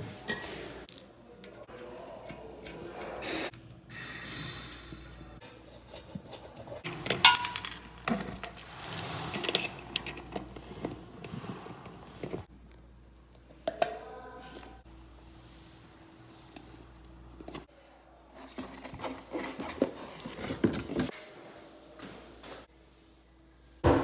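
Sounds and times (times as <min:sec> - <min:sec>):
small metal objects clinking: 0:07.1 - 0:09.7.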